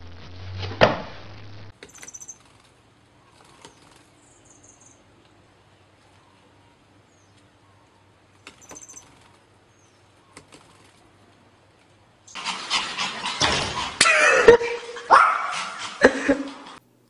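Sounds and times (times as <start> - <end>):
faint high chirps: 6.1 - 10.4
small dog yapping: 12.3 - 16.8
loud noisy scuffle: 12.4 - 16.8.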